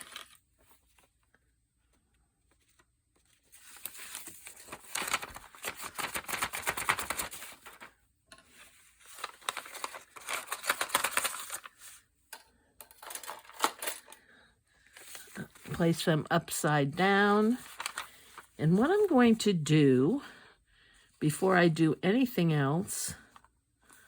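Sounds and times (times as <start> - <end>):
paper rustling and crinkling: 0.0 - 12.1, 12.9 - 16.1, 17.3 - 19.4.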